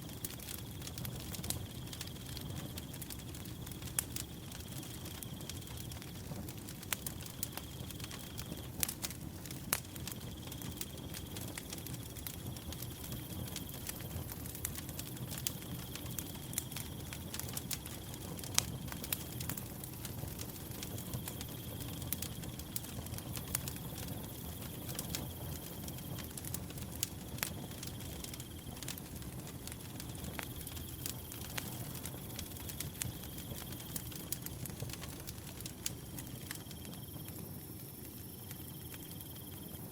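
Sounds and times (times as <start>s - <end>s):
wood fire crackling: 0.0s - 39.9s
cricket trilling: 35.7s - 39.9s.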